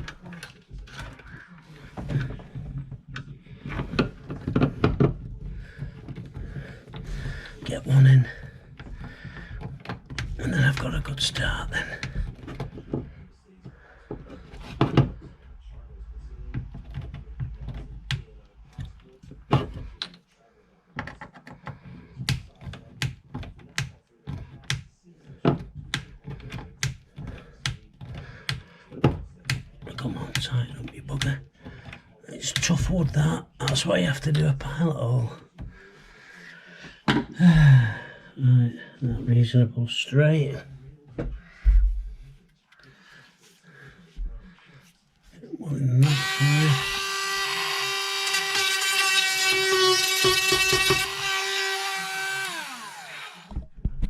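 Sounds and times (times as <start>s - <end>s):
screwdriver clicking and knocking: 21.0s - 32.0s, 46.0s - 54.0s
screwdriver driving screw into wood: 46.0s - 53.6s.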